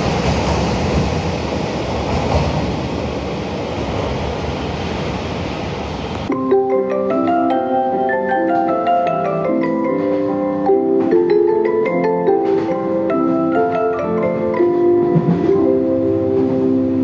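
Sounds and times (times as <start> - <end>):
bell-like mallet melody: 6.3 - 17.0.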